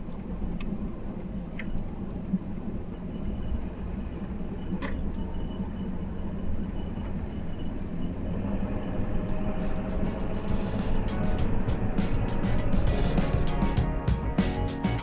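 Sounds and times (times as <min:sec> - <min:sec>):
truck road and engine noise: 0:02.7 - 0:15.0
music: 0:09.1 - 0:15.0.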